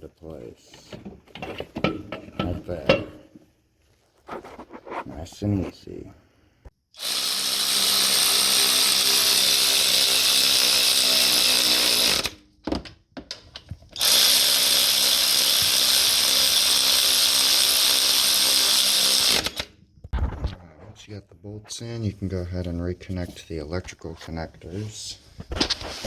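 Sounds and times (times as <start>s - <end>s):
power tool running in bolts: 7.0s - 12.4s, 14.0s - 19.7s.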